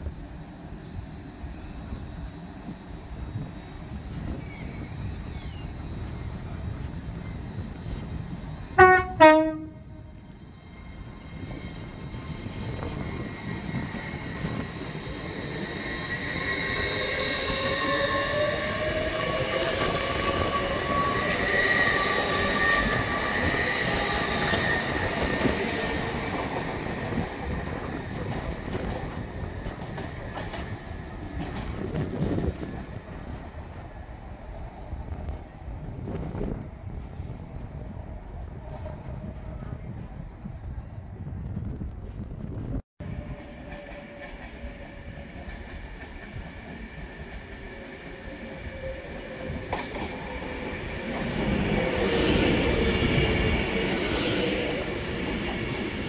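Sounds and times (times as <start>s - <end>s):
train passing rumble: 0.0s - 56.0s
train horn blasts: 8.8s - 10.2s.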